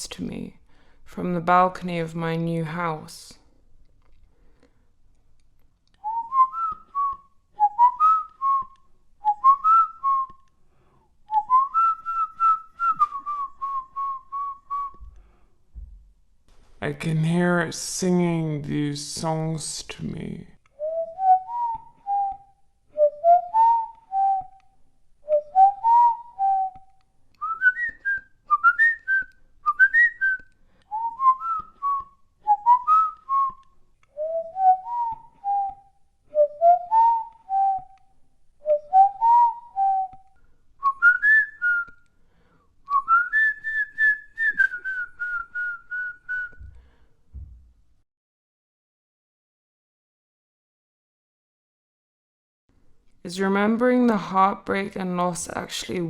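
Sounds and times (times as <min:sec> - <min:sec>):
person whistling a tune: 0:06.0 - 0:10.5, 0:11.3 - 0:15.1, 0:20.8 - 0:42.0, 0:42.9 - 0:47.0.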